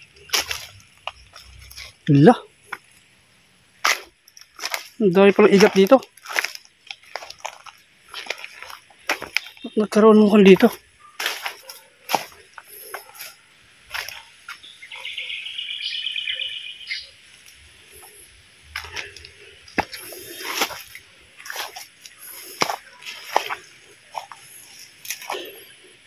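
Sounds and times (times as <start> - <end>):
plants rustling: 0.0 - 3.1, 3.8 - 14.8, 17.2 - 26.0
footsteps in mud: 0.2 - 2.0, 3.8 - 14.6, 18.0 - 25.9
bird trilling: 14.5 - 17.2.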